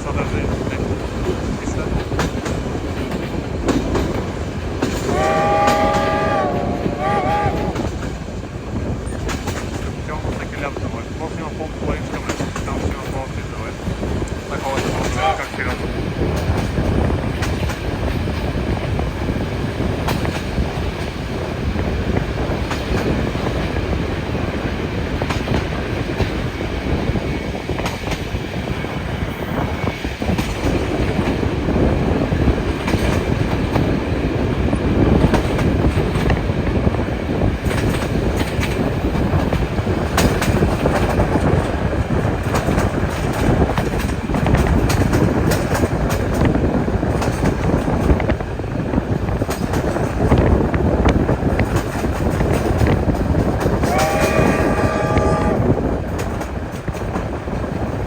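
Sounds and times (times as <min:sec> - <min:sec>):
wheels clicking over rail joints: 0:00.0 - 0:29.0, 0:29.6 - 0:58.0
train wheels rumbling on rails: 0:00.0 - 0:58.0.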